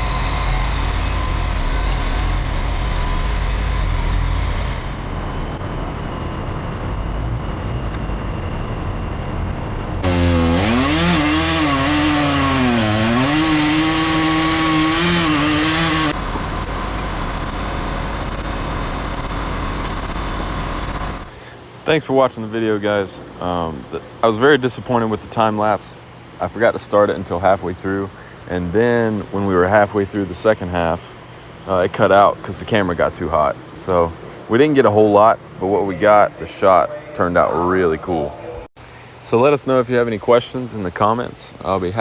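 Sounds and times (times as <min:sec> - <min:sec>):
chainsaw revving: 0:00.0 - 0:05.0, 0:10.0 - 0:16.2
heavy engine droning: 0:00.0 - 0:21.6.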